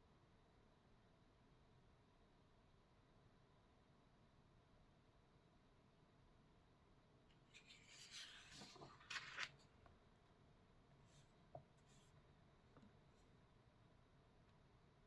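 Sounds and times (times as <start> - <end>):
rubbing and scratching on paper: 7.5 - 9.6.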